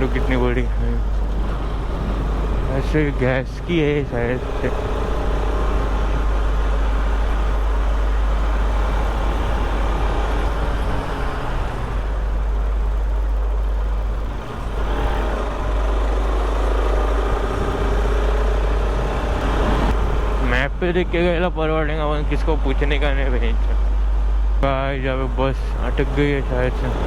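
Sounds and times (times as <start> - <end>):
wind rumble on microphone: 0.0 - 21.5
motorcycle engine: 0.0 - 27.0
passing vehicles: 0.0 - 27.0.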